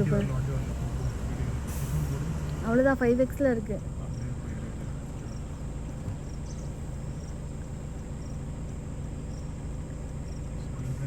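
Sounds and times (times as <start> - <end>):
vehicle engine idling: 0.0 - 11.0
high insect chirps: 6.2 - 10.6.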